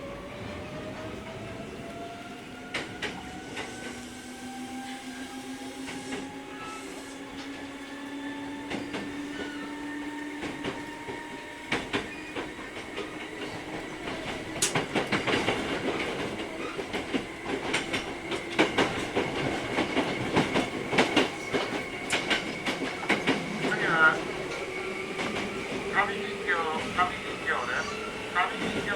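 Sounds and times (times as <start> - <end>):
train wheels clacking over rail joints: 10.3 - 26.1.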